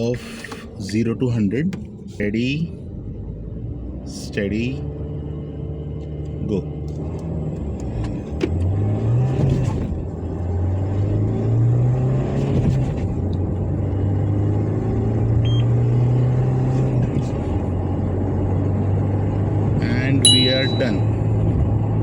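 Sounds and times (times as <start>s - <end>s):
car engine accelerating hard: 2.9s - 19.8s.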